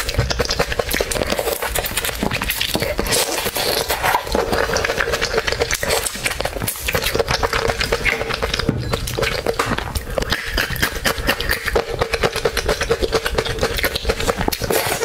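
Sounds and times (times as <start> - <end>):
chewing and crunching: 0.0 - 15.0.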